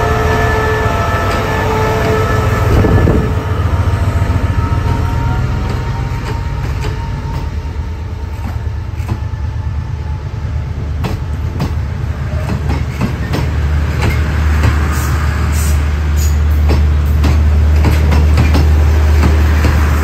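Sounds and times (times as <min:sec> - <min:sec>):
diesel train drone: 0:00.0 - 0:20.0
wheels clicking over rail joints: 0:16.2 - 0:19.8.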